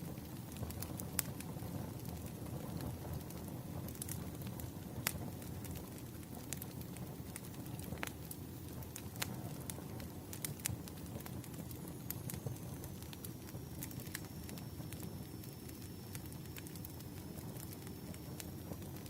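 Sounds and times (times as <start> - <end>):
firewood burning: 0.0 - 19.0
sharp pops and crackles: 0.1 - 19.0
faint high steady tone: 11.9 - 18.8.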